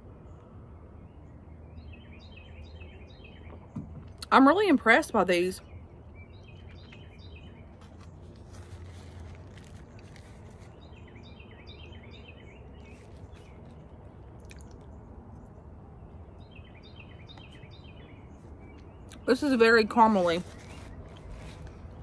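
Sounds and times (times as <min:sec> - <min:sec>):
person quietly chewing: 0:07.8 - 0:10.8, 0:12.8 - 0:15.5, 0:20.6 - 0:22.0.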